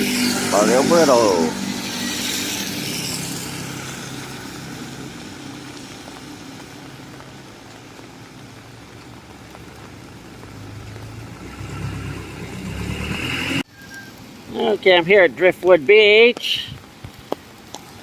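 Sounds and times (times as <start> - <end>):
motor vehicle noise: 0.0 - 14.8
rain hiss on wet road: 0.0 - 18.0.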